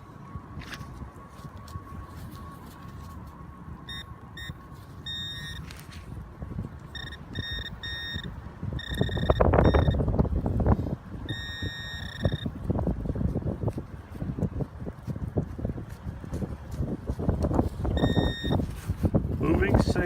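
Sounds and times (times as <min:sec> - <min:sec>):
metal detector beeps: 0:02.2 - 0:06.1, 0:06.8 - 0:10.1, 0:11.2 - 0:12.6, 0:17.9 - 0:18.7
wind on microphone: 0:03.9 - 0:20.0.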